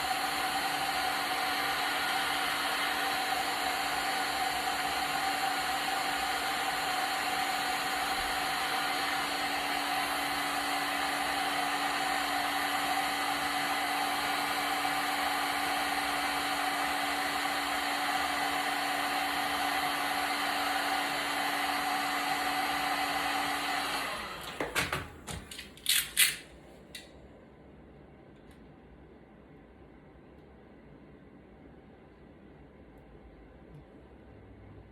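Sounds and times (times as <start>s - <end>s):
electric blower motor humming: 0.0s - 24.9s
sharp clicks and knocks: 24.5s - 26.4s.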